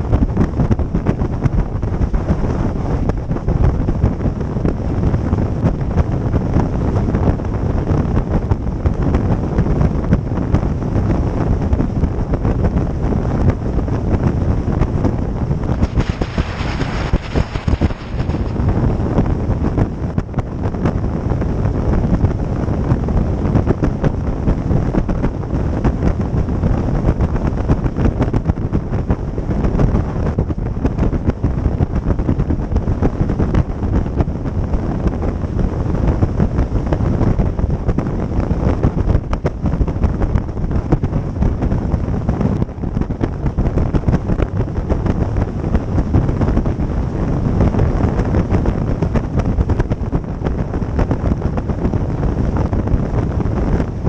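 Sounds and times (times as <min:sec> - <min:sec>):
motorboat engine running: 0:00.0 - 0:54.0
wind buffeting microphone: 0:00.0 - 0:54.0.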